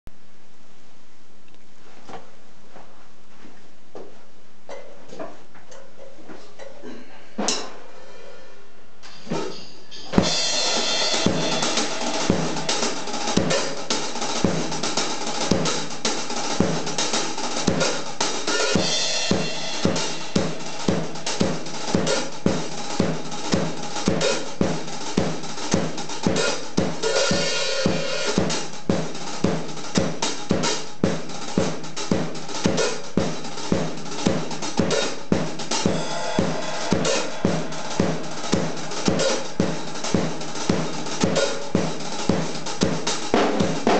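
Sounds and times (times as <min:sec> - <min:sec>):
cymbal crashes: 0:07.9 - 0:28.7, 0:34.8 - 0:43.9
rock drum groove: 0:09.0 - 0:43.9.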